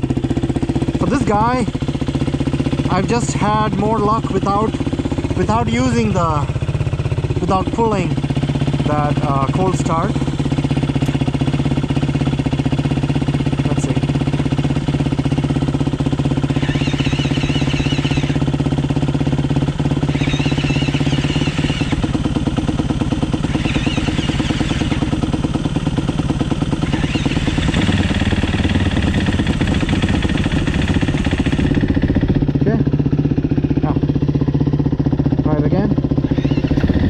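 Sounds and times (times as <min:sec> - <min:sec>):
dirt bike engine idling: 0:00.0 - 0:37.0
electric starter whining: 0:16.3 - 0:18.8, 0:19.9 - 0:32.2, 0:36.2 - 0:37.0.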